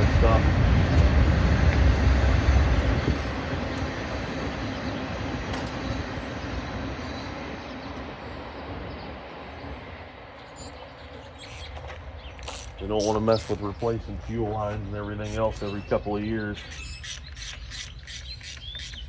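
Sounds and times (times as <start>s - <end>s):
passing vehicle rumbling: 0.0s - 10.4s.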